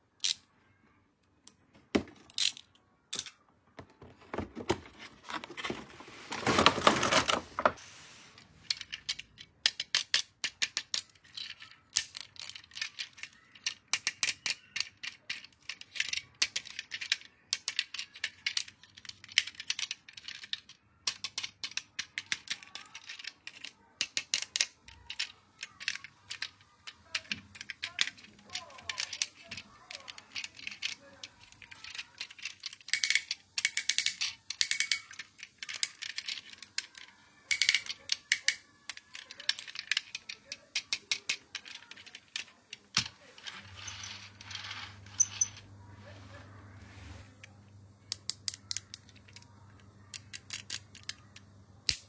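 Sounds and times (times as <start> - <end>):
plastic packaging crinkling: 4.9 - 7.8.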